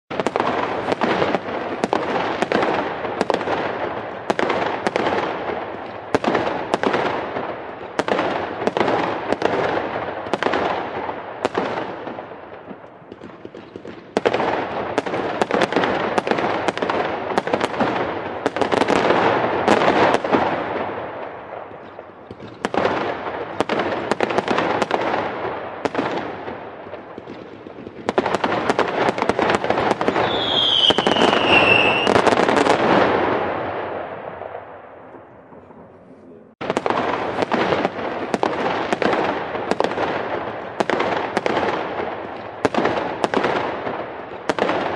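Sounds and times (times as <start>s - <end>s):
firework crackling: 0.1s - 34.9s, 36.6s - 44.9s
firework bangs: 0.1s - 44.9s.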